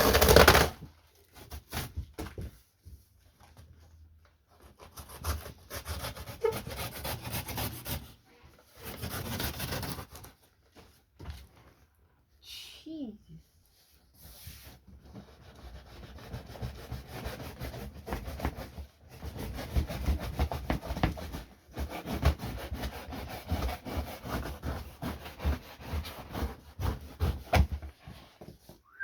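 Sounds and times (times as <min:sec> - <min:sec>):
knife cutting cardboard: 0:00.0 - 0:02.0, 0:04.5 - 0:08.2, 0:08.8 - 0:10.3, 0:14.3 - 0:28.8.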